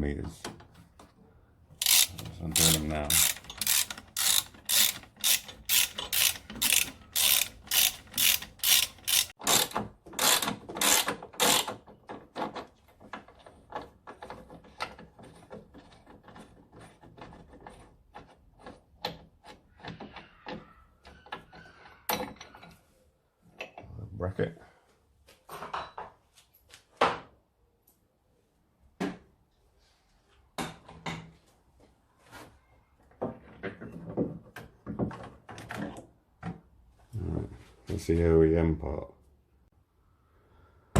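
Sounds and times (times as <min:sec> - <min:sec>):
socket ratchet clicking: 0:01.8 - 0:09.3.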